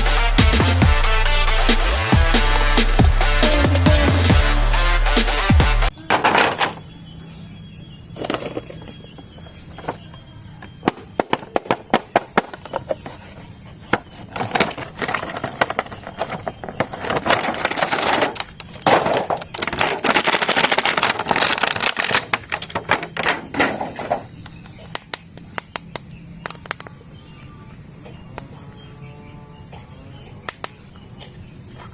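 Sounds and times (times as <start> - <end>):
plastic packaging rustling: 14.8 - 23.5.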